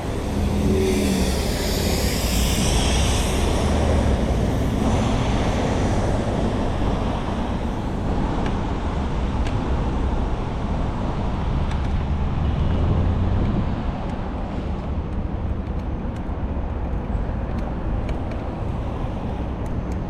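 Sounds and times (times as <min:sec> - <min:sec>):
deep rumble: 0:00.0 - 0:08.3
wind on microphone: 0:00.0 - 0:16.0
city traffic: 0:00.0 - 0:20.0.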